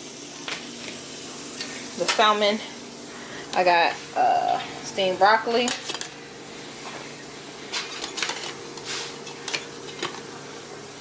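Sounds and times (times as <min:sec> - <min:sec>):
steady background hum: 0:00.0 - 0:11.0
cookware and utensils clinking: 0:05.5 - 0:06.1.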